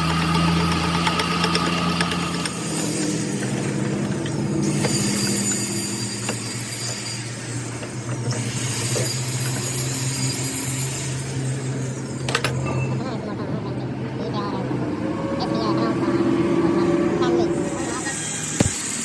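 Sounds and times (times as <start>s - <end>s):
machine motor humming: 0.0s - 9.8s.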